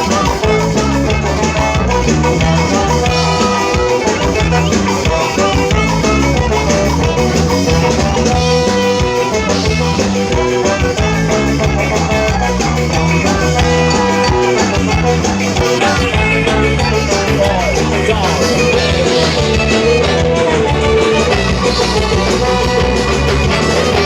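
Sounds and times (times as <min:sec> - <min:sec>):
ska band playing live: 0:00.0 - 0:24.0.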